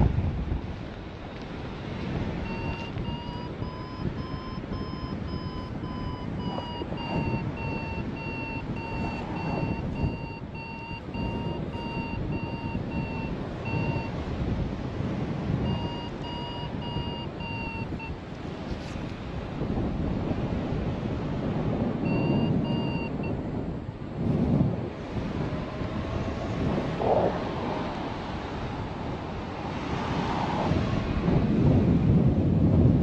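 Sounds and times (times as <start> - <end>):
wind noise on microphone: 0.0 - 33.0
variometer rapid beeps: 2.4 - 14.2, 15.6 - 18.2, 22.0 - 23.5.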